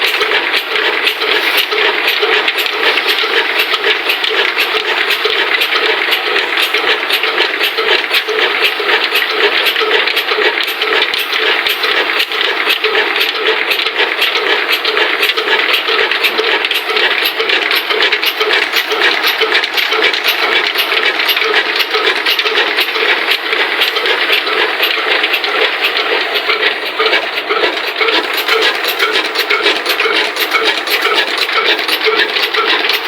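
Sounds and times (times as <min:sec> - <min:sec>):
diesel engine driving flour mill: 0:00.0 - 0:33.0.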